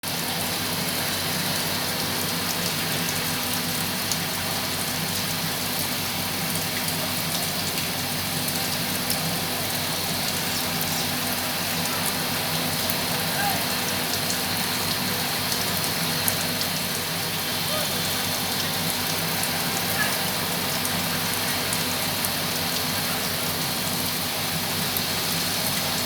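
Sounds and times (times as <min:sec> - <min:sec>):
rain falling: 0:00.0 - 0:26.0
raindrop ticks: 0:01.9 - 0:17.0.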